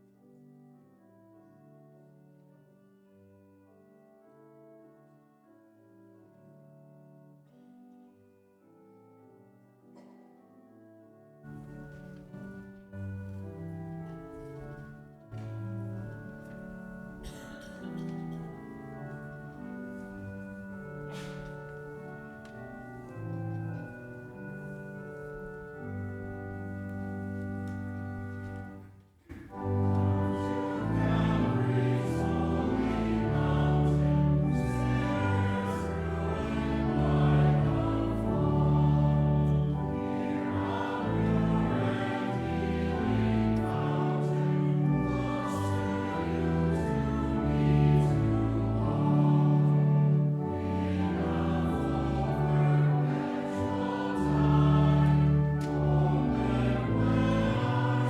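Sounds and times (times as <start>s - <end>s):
choir singing sustained chords: 15.4s - 58.0s.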